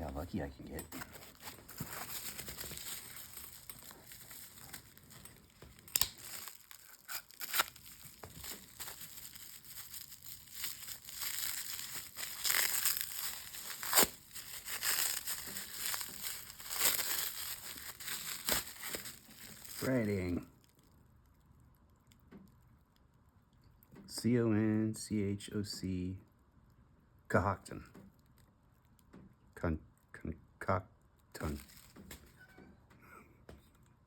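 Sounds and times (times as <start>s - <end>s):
packing material crinkling and tearing: 0.7s - 20.9s, 31.4s - 32.3s.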